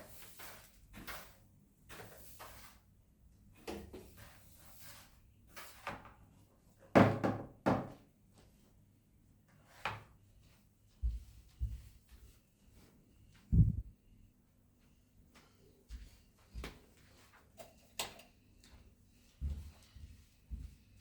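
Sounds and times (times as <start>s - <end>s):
household things knocking and clattering: 6.9s - 8.0s.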